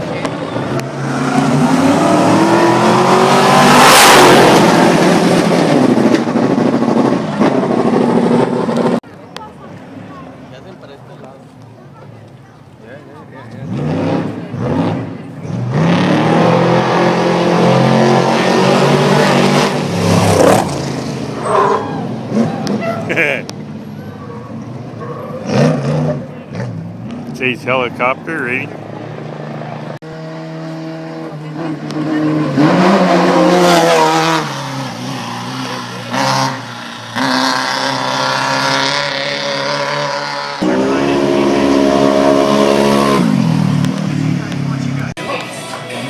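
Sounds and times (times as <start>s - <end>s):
vehicle engine running loud: 13.0s - 46.0s.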